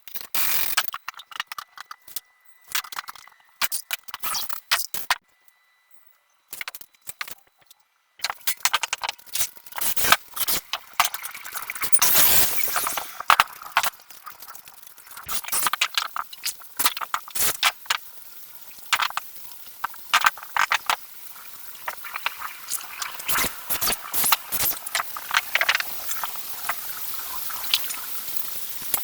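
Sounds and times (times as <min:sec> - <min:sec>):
small pieces clicking and tapping: 0:00.1 - 0:05.2, 0:06.5 - 0:18.1, 0:18.7 - 0:21.1.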